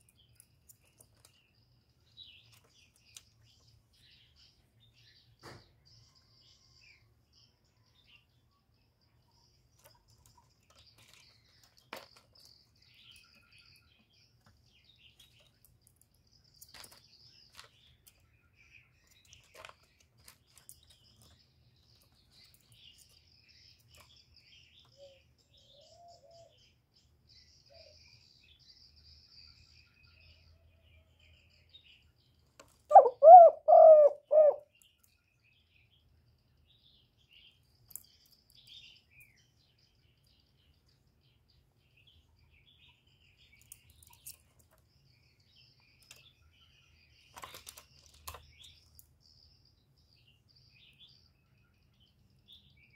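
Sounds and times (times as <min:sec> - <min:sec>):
small birds chirping: 0:00.0 - 0:52.9
dove cooing: 0:32.9 - 0:34.7.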